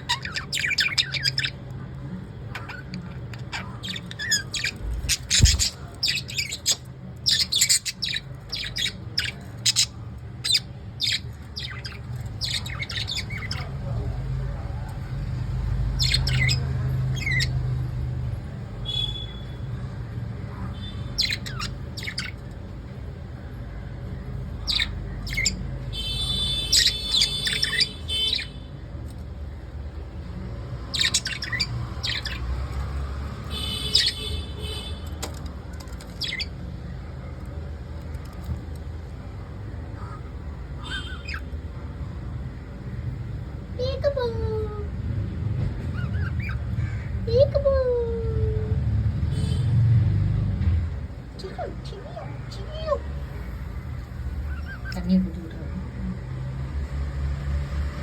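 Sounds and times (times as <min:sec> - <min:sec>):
bird chattering: 0:00.0 - 0:14.5, 0:20.5 - 0:22.7, 0:24.4 - 0:28.7, 0:30.9 - 0:35.0, 0:36.0 - 0:37.0, 0:39.8 - 0:41.8, 0:53.9 - 0:55.5
lovebirds squawking and chirping: 0:00.0 - 0:44.7, 0:45.6 - 0:48.0, 0:50.9 - 0:56.2.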